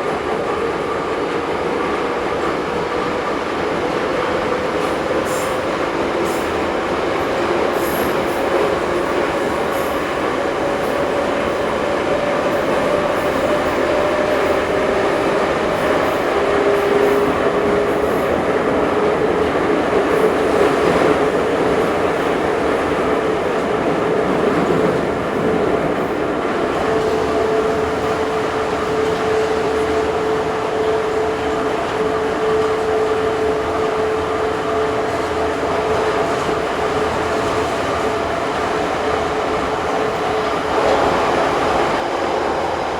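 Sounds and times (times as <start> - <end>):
train wheels rumbling: 0.0 - 42.9.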